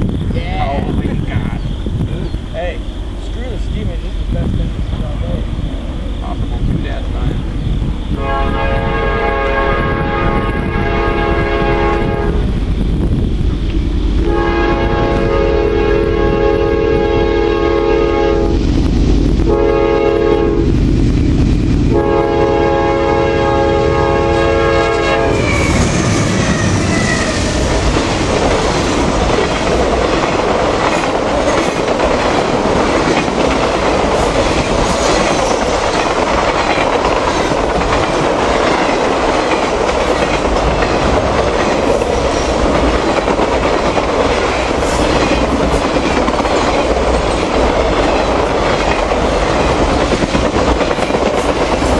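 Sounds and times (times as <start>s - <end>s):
locomotive air horn blasts: 8.2s - 12.5s, 14.2s - 18.6s, 19.5s - 20.7s, 21.9s - 26.2s
wheel squeal: 25.3s - 27.6s
train wheels clacking over rail joints: 25.7s - 51.9s.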